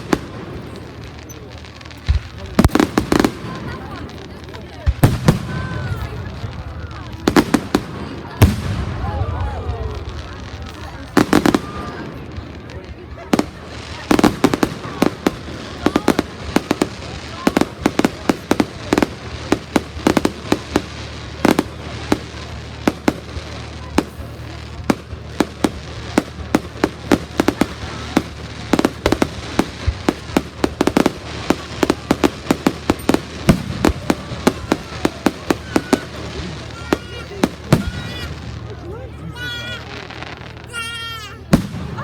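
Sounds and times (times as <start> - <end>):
fireworks bangs and crackles: 0.0 - 42.0.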